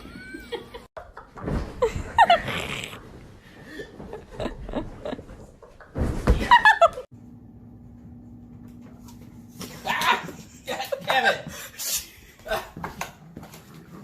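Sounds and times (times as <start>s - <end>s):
person laughing: 0.0s - 0.9s, 1.8s - 2.8s, 10.2s - 12.9s.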